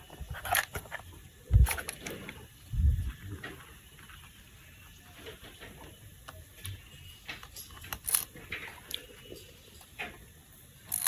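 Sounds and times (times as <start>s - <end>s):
plastic toy parts clicking: 0.4s - 1.0s, 7.2s - 9.0s.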